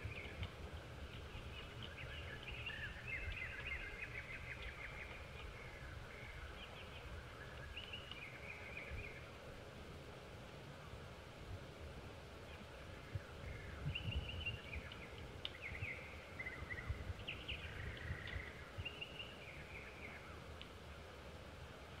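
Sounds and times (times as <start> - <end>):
bird chirps and trills: 0.0 - 9.4, 12.4 - 20.5
constant low rumble: 0.0 - 22.0.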